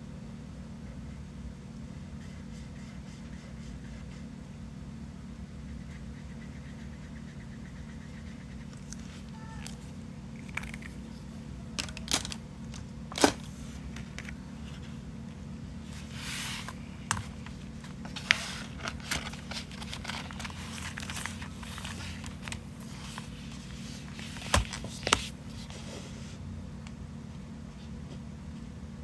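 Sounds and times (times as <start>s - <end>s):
steady low hum: 0.0s - 29.0s
paper rustling and crinkling: 8.6s - 15.0s, 15.9s - 26.0s.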